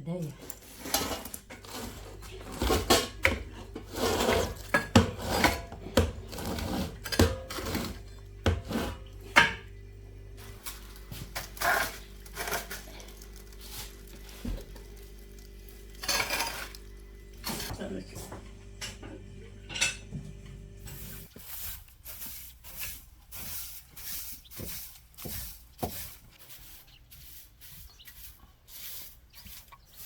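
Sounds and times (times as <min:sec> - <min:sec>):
dishes and cutlery clinking: 0:16.0 - 0:16.8, 0:18.8 - 0:20.1.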